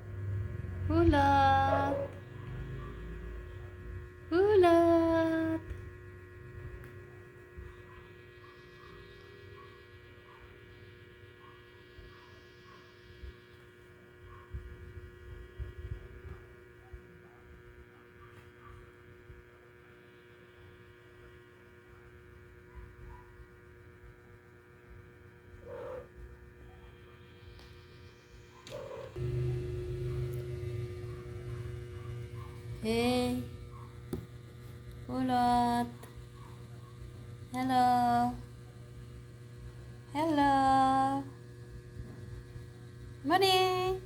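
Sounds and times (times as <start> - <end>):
steady electrical hum: 0.0 - 44.0
faint low rumble: 26.6 - 40.4.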